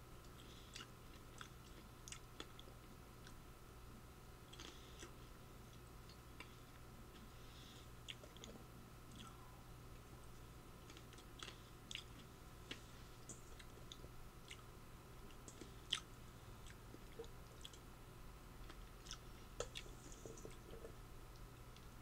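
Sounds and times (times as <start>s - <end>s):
person chewing: 0.2s - 3.4s, 4.5s - 7.3s, 8.0s - 9.5s, 10.8s - 14.7s, 15.3s - 17.8s, 18.6s - 21.9s.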